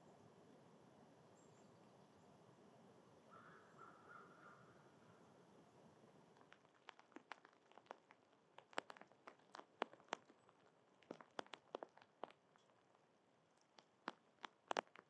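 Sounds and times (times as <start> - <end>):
animal cracking seeds: 6.2 - 15.0.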